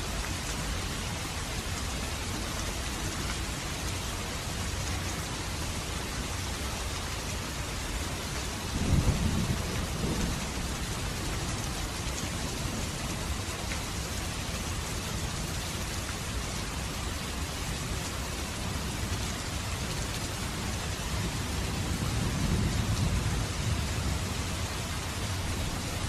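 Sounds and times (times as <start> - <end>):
rain falling on surfaces: 0.0 - 26.0
low rumble of thunder: 8.6 - 13.4, 20.6 - 25.8.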